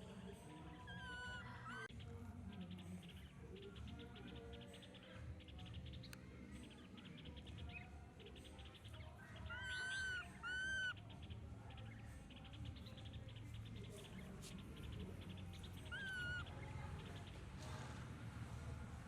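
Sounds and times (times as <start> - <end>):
baby monkey squealing: 0.8 - 1.9, 9.4 - 11.0, 14.8 - 16.6
fast ticking chirp: 7.2 - 17.4.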